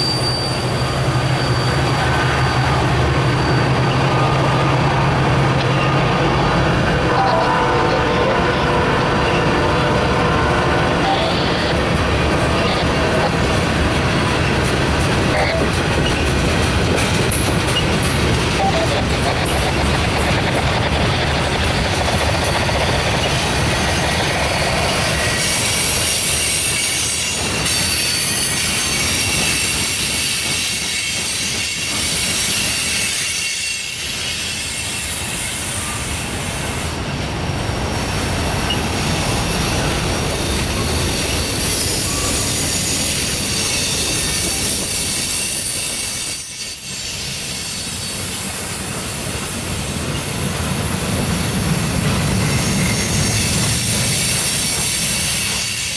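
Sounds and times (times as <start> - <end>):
high-pitched wheel squeal: 0.0 - 4.5, 23.2 - 36.4, 41.2 - 48.3
freight train wheels rumbling: 0.0 - 55.9.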